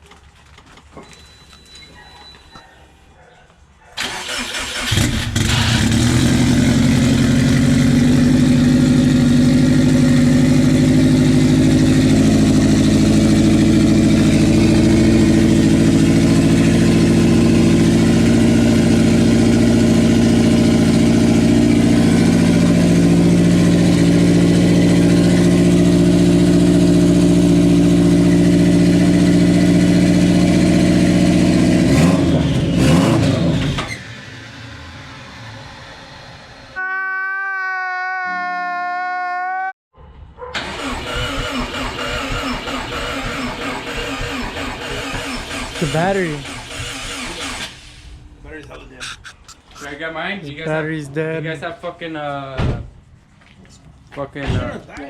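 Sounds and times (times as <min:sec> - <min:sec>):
car engine starting and idling: 0:04.0 - 0:36.7, 0:40.6 - 0:48.4.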